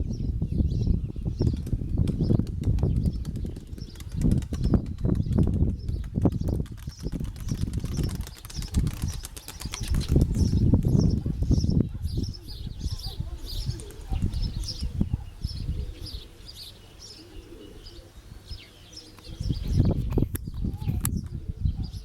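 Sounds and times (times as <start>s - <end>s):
wind buffeting microphone: 0.0s - 16.7s, 19.2s - 22.0s
pigeon wings flapping: 1.6s - 11.0s, 13.8s - 14.4s.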